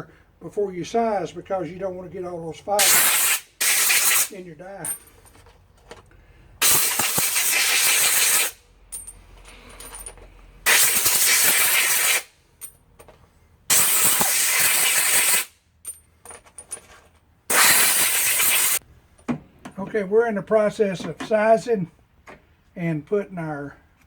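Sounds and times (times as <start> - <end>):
compressed air blasts: 2.8 - 4.4, 6.6 - 8.6, 10.6 - 12.3, 13.7 - 15.6, 17.5 - 18.8
brass cases clinking: 4.8 - 6.1, 8.8 - 10.5, 12.6 - 13.2, 15.8 - 17.3.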